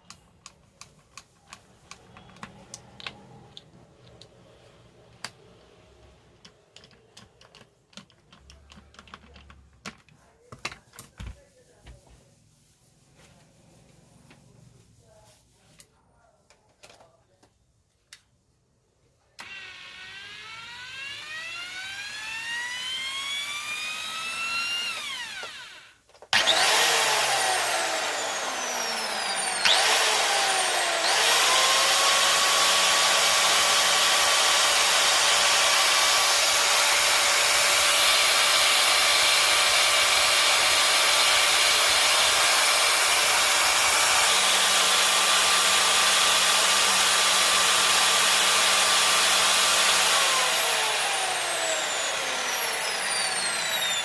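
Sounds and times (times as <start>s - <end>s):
angle grinder motor whining: 19.4s - 54.0s.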